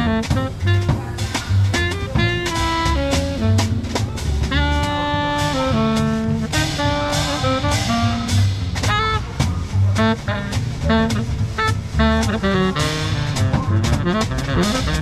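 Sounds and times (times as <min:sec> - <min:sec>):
horn holding long notes: 0:00.0 - 0:09.4
bass: 0:00.0 - 0:15.0
drums: 0:00.0 - 0:15.0.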